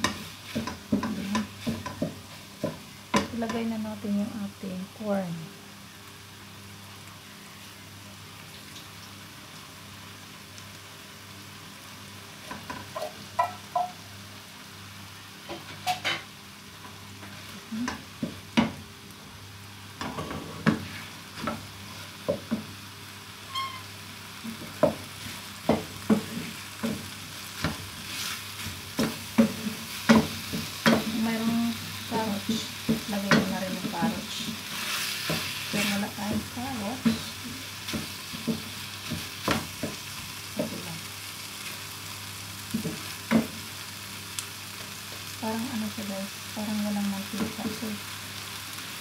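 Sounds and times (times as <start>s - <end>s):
corn sizzling in a pan: 0.0s - 49.0s
spatula scraping a pan: 27.6s - 31.2s, 32.4s - 36.1s.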